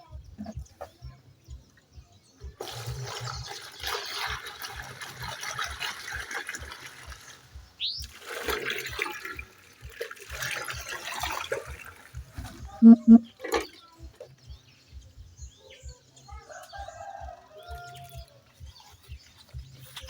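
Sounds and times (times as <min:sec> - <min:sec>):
rushing splashing water: 0:02.6 - 0:12.7
short rising squeak: 0:12.8 - 0:13.3.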